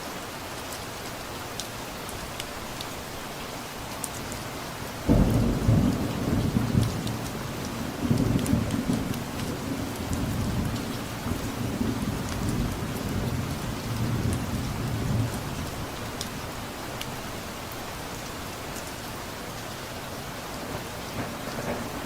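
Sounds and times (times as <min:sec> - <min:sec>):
steady rain falling: 0:00.0 - 0:22.0
distant thunder rumble: 0:05.1 - 0:15.4, 0:20.6 - 0:22.0.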